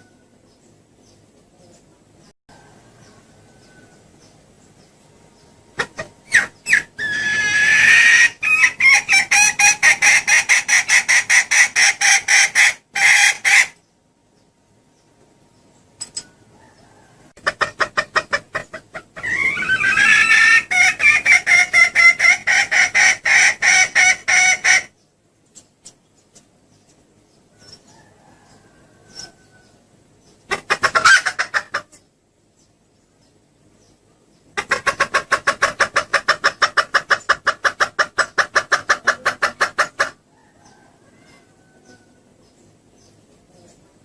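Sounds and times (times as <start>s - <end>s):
junglefowl hen clucking: 5.7s - 13.9s, 16.2s - 32.1s, 34.5s - 42.6s.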